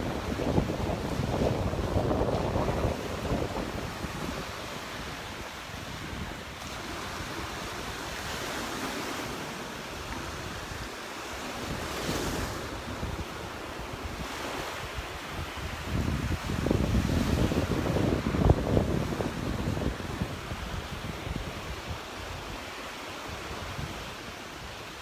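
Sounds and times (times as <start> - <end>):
surf breaking on beach: 0.0 - 25.0
wind buffeting microphone: 0.0 - 25.0.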